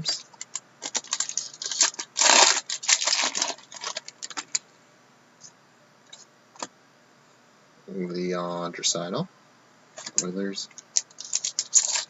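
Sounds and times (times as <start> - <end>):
cards crinkling and rustling: 0.1 - 4.6, 10.0 - 10.3, 10.9 - 12.0.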